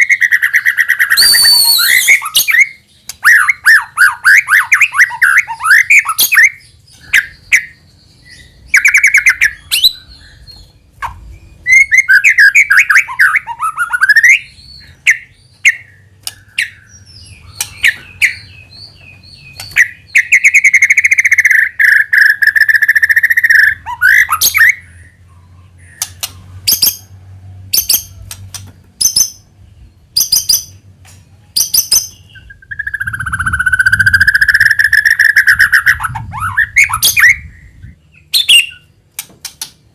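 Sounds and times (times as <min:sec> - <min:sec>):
long steady bird whistle: 0:00.0 - 0:06.6
bird whistled song phrases: 0:00.0 - 0:18.6, 0:19.4 - 0:26.3, 0:31.8 - 0:38.9.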